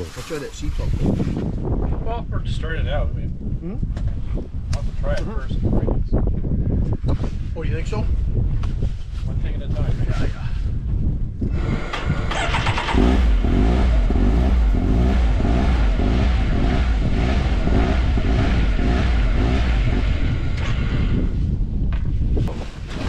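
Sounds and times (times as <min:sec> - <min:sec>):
utility vehicle engine running: 0:11.5 - 0:21.3.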